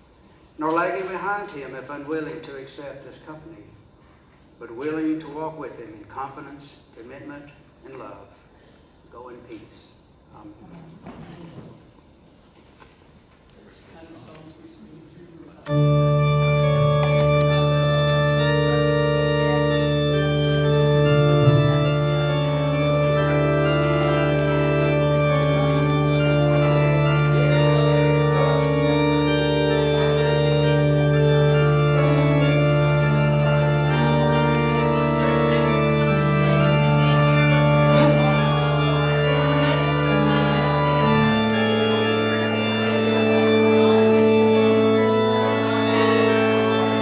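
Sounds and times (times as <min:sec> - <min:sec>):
church organ playing chords: 0:15.6 - 0:47.0.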